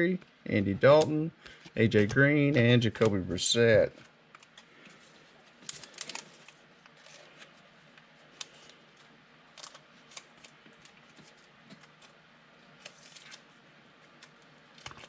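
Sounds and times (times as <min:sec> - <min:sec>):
trading cards clicking and rustling: 0:00.8 - 0:04.7, 0:05.6 - 0:07.5.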